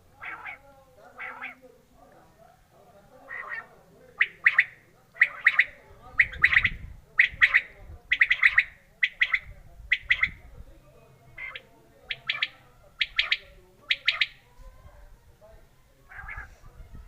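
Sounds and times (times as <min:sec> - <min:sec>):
quail calling: 0:00.2 - 0:01.6, 0:03.2 - 0:10.4, 0:11.3 - 0:14.5, 0:16.1 - 0:16.6.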